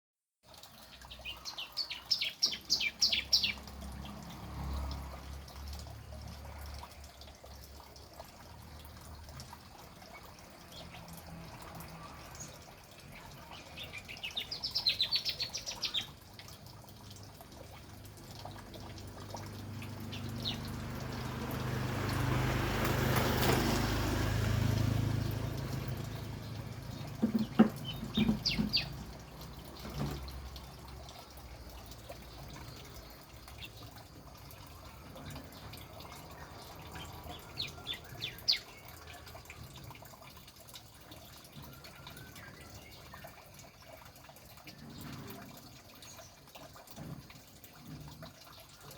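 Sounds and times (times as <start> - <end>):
wash of noise: 1.1 - 7.7, 8.3 - 39.9.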